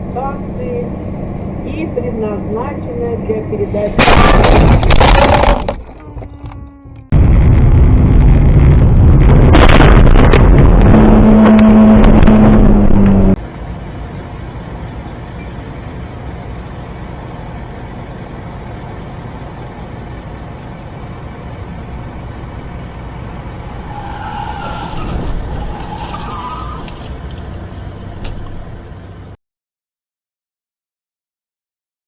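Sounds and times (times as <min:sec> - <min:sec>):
car road and engine noise: 0:00.0 - 0:07.2, 0:08.2 - 0:29.4
high squealing tones: 0:23.7 - 0:27.1.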